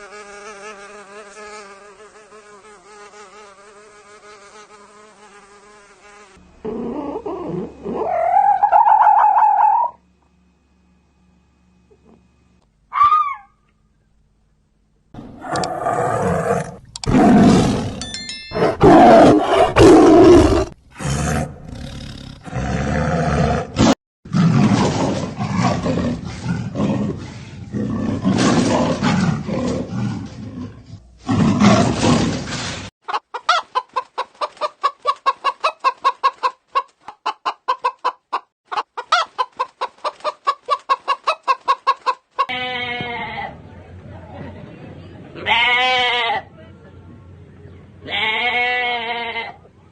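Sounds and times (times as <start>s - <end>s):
animal roars: 15.2s - 18.0s, 18.6s - 32.7s
chicken clucking: 33.1s - 42.5s.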